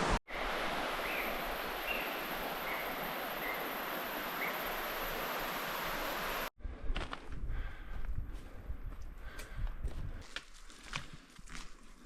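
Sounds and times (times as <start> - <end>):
river water rushing: 0.0 - 6.5.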